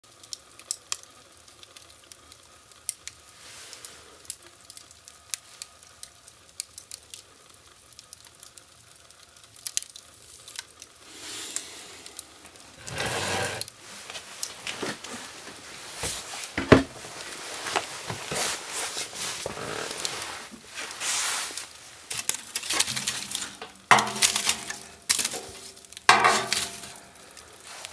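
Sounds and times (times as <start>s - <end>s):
wood fire crackling: 0.1s - 27.9s
faint hiss: 3.1s - 5.9s, 10.1s - 27.9s.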